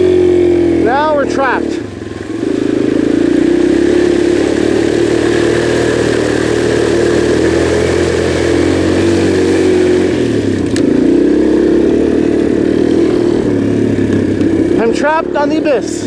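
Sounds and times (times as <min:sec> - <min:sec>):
dirt bike engine running: 0:00.0 - 0:16.0
sharp click: 0:10.6 - 0:10.9.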